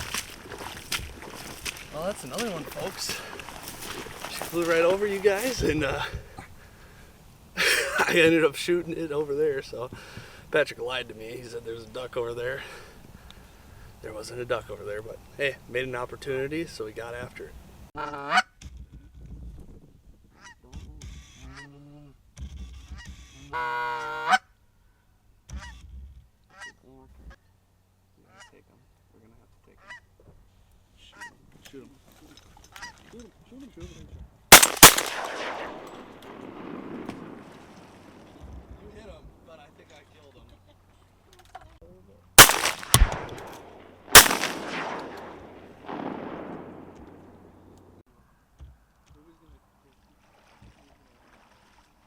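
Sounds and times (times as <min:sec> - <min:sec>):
shotgun blasts echoing: 0:34.5 - 0:38.7, 0:42.4 - 0:48.0.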